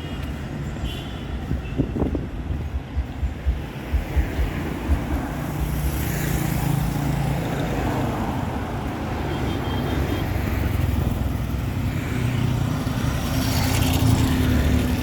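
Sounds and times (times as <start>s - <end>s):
low thuds: 1.4s - 6.0s.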